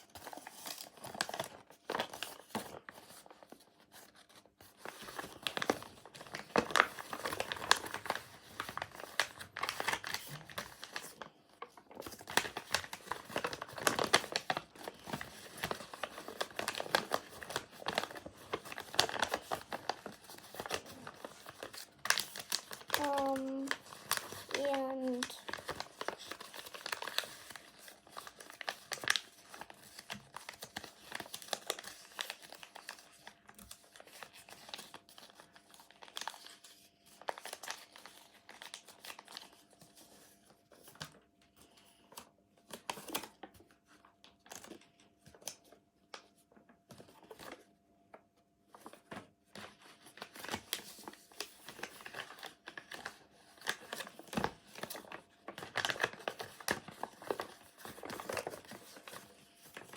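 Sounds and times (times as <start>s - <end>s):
paper being folded and creased: 0.0s - 41.1s, 48.7s - 59.9s.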